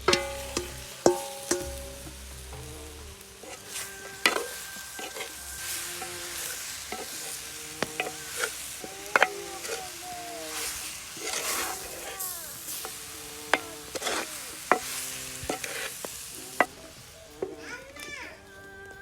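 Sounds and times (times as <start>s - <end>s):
spoon clinking and scraping pan: 0.0s - 2.4s, 3.1s - 17.7s
curry sizzling in a pan: 0.0s - 19.0s.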